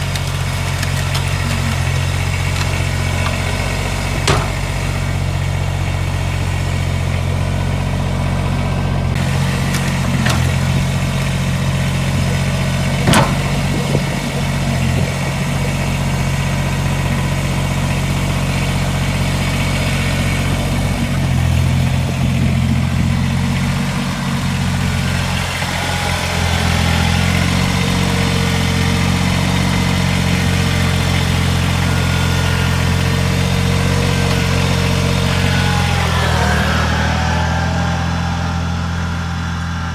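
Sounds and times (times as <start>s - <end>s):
tractor diesel engine running: 0.0s - 39.9s
sharp knocks: 1.3s - 5.4s, 12.8s - 15.1s.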